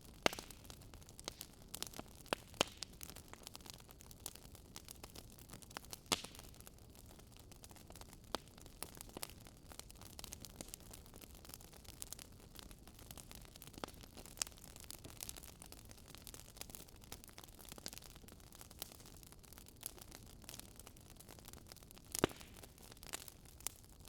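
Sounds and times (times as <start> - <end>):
bonfire crackling and popping: 0.0 - 24.0.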